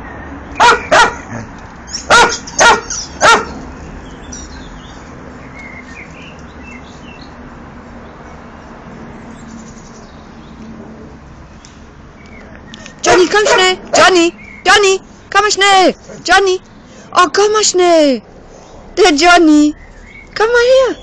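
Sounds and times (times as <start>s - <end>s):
dog barking: 0.6s - 1.5s, 2.1s - 3.6s, 13.0s - 14.1s.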